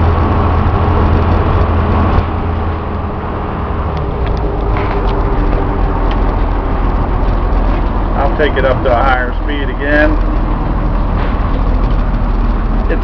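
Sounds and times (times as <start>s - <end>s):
diesel engine running: 0.0s - 13.0s
man talking: 8.2s - 10.2s.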